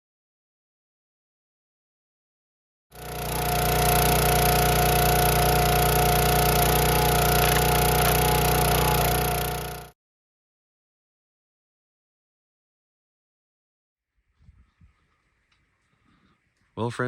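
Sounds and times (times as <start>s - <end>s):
small engine running: 2.9s - 10.0s.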